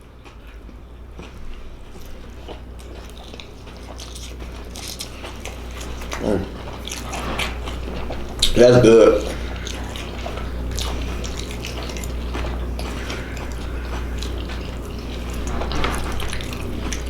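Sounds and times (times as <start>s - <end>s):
biting and chewing: 0.0s - 17.0s
steady low hum: 0.0s - 17.0s
vocal murmur: 5.8s - 17.0s.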